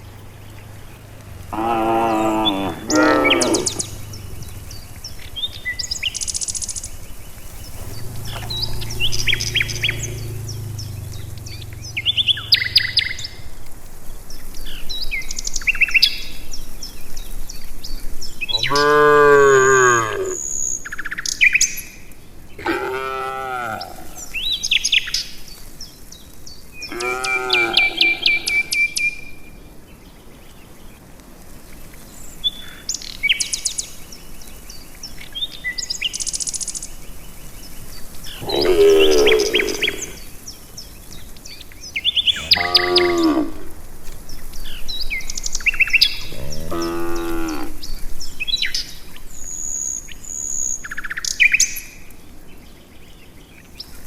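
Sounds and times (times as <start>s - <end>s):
small birds chirping: 0.0s - 54.0s
cattle mooing: 0.1s - 5.8s, 7.5s - 13.3s, 18.6s - 20.4s, 22.6s - 24.3s, 26.9s - 28.7s, 38.3s - 40.3s, 42.3s - 43.9s, 46.2s - 47.8s.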